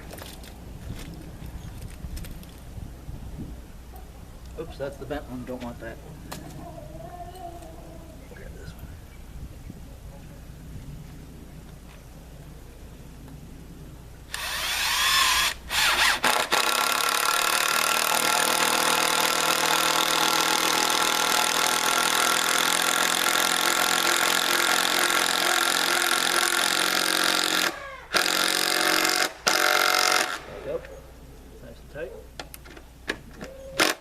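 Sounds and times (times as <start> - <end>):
power drill whining: 14.3 - 30.4.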